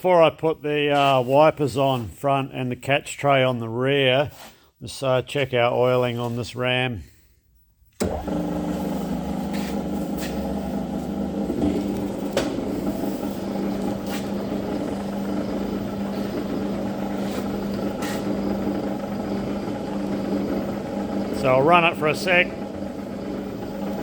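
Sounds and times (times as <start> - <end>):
shaper machine humming: 8.0 - 24.0.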